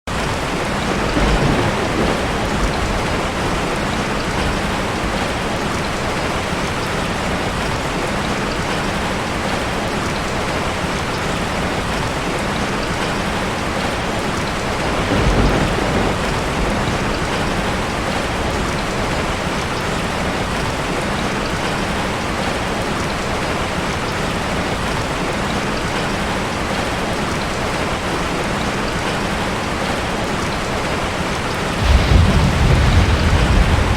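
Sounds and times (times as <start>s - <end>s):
heavy rain on a metal roof: 0.0s - 33.9s
low rumble of thunder: 0.2s - 6.4s, 11.9s - 20.6s, 31.7s - 33.9s.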